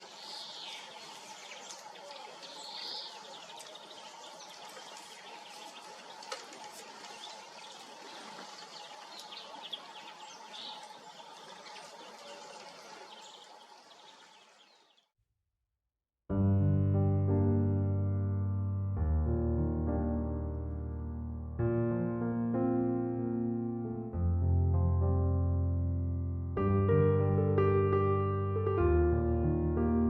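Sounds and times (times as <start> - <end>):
finches chirping and calling: 0.1 - 5.8, 8.6 - 15.0
piano music: 16.3 - 30.0.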